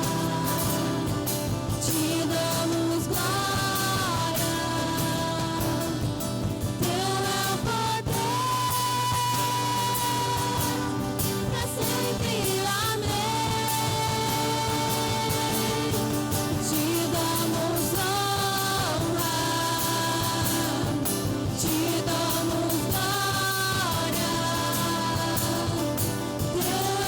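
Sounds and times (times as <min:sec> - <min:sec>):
live worship band playing: 0:00.0 - 0:27.0
person singing: 0:00.0 - 0:27.0.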